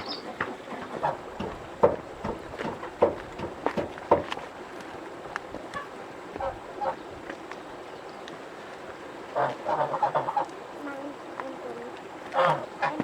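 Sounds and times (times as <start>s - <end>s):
waterfowl honking: 0.0s - 1.5s, 5.7s - 7.1s, 9.3s - 11.1s, 11.7s - 13.0s
faint knocks: 0.4s - 4.4s.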